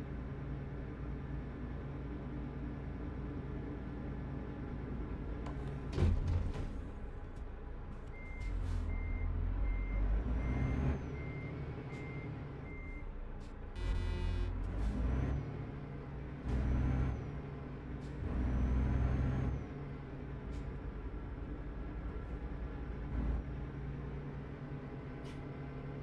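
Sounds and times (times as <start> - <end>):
truck engine rumbling: 0.5 - 26.0
high warning beeps: 13.8 - 14.6
horn blare: 13.8 - 14.9.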